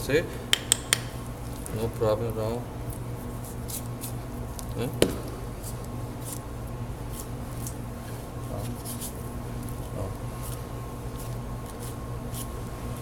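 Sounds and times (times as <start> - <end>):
background hum: 0.0 - 13.0
knife scraping meat and bone: 3.3 - 4.2, 5.6 - 13.0.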